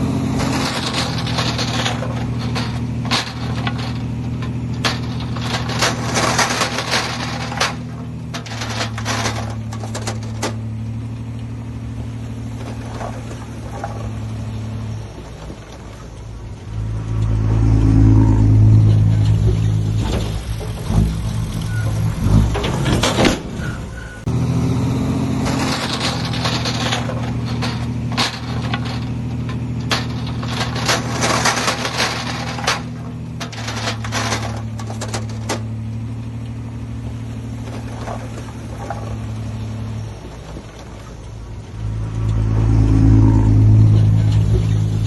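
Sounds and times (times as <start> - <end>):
heavy diesel engine revving: 0.0 - 15.7, 16.5 - 45.0
clatter of sharp knocks: 0.3 - 10.7, 25.4 - 35.8.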